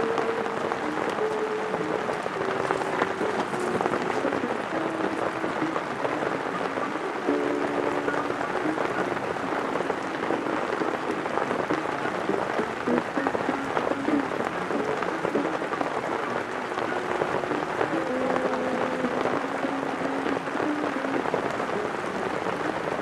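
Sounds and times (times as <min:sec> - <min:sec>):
jazz music on small speaker: 0:00.0 - 0:23.0
rain falling: 0:00.0 - 0:23.0.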